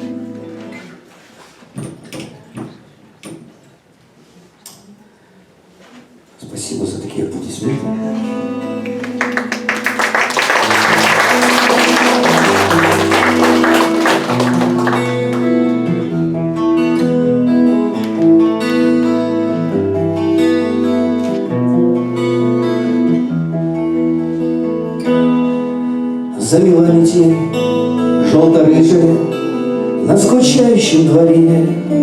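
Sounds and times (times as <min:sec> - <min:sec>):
acoustic guitar playing: 0:07.9 - 0:32.0
audience applause: 0:08.8 - 0:15.6.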